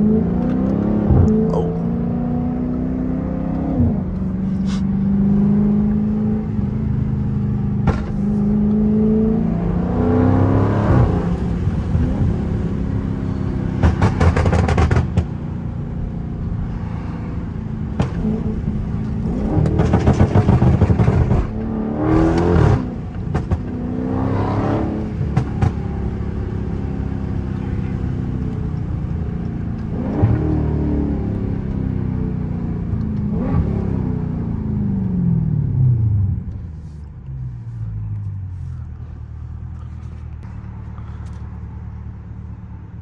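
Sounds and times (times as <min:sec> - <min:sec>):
car engine revving: 0:00.0 - 0:43.0
exhaust crackling pops: 0:07.8 - 0:08.7, 0:13.7 - 0:15.4, 0:17.9 - 0:23.8, 0:25.0 - 0:26.2.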